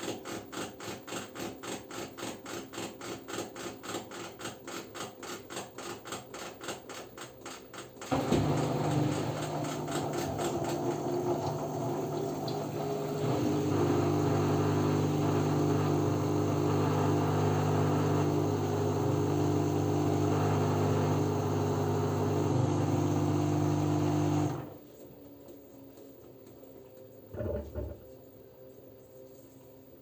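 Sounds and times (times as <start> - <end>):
washing machine motor humming: 8.1 - 24.8, 27.3 - 28.2.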